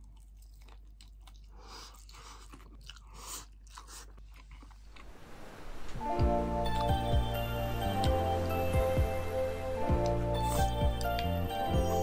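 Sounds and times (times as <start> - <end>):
crunchy chewing: 0.0 - 5.2.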